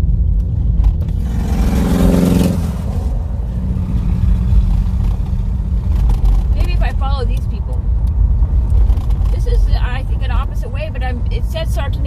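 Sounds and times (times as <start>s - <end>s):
car rumbling on dirt road: 0.0s - 12.0s.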